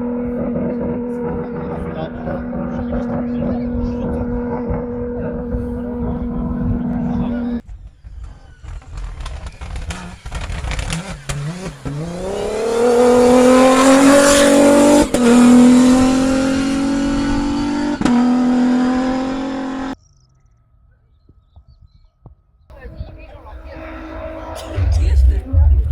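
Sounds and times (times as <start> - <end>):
car engine accelerating hard: 0.0 - 7.6, 8.2 - 20.0.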